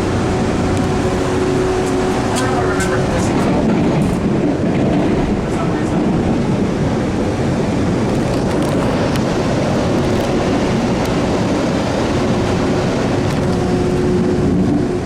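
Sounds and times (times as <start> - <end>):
low hum: 0.0 - 4.3
wheels on rail roaring: 0.0 - 15.0.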